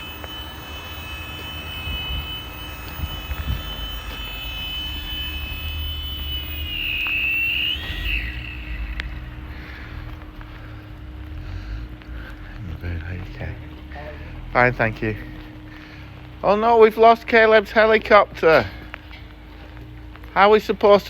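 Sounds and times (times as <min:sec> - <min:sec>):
toy helicopter whine: 0:00.0 - 0:11.8
low rumble: 0:00.0 - 0:20.2.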